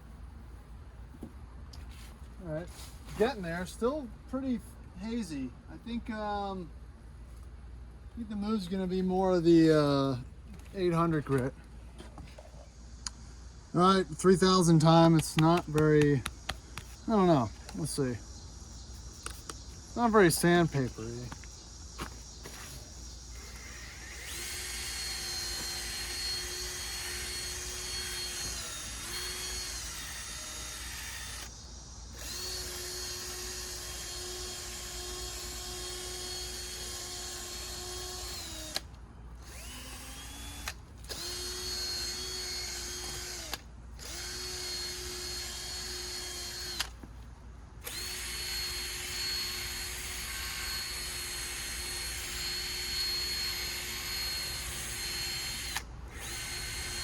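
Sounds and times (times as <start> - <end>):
power drill sanding plastic: 23.4 - 31.5, 39.5 - 46.9, 47.9 - 57.0.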